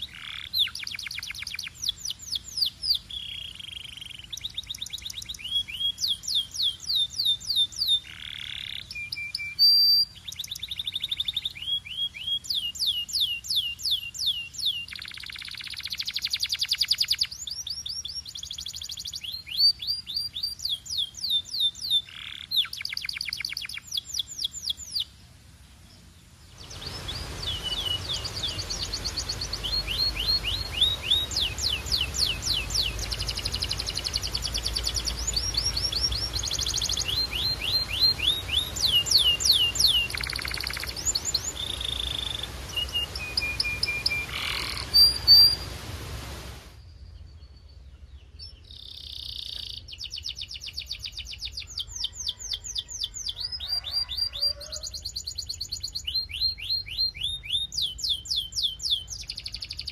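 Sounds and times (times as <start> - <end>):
canary singing: 0.0 - 25.1, 26.6 - 45.8, 48.4 - 59.9
steady hiss: 22.0 - 47.1.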